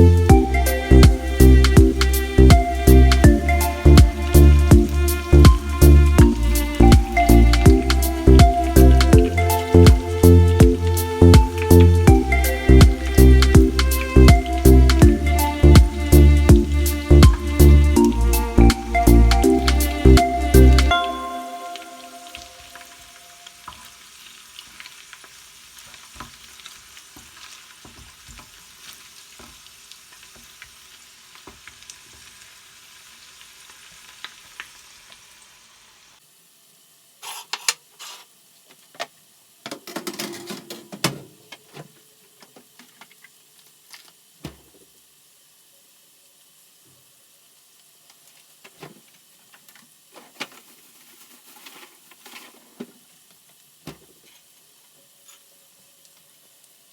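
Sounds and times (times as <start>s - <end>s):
food sizzling in a pan: 0.0s - 40.4s, 41.3s - 56.9s
kitchen clinks and knocks: 39.7s - 41.8s.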